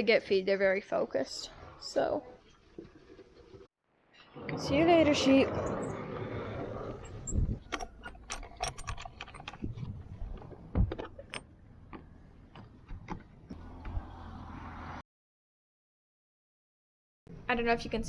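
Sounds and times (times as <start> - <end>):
metallic clicking and rattling: 7.6 - 11.5.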